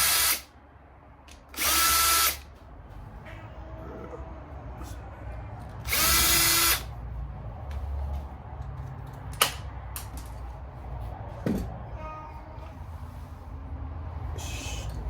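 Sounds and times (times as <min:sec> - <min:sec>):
power drill burst: 0:00.0 - 0:00.5, 0:01.6 - 0:02.4, 0:05.8 - 0:06.9.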